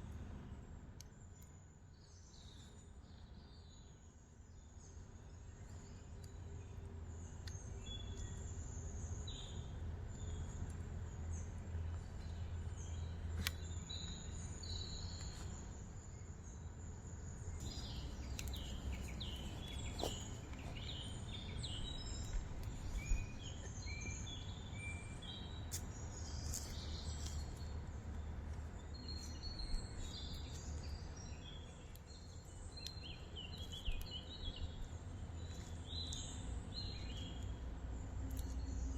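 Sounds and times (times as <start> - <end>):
birds chirping and calling: 17.6 - 24.6.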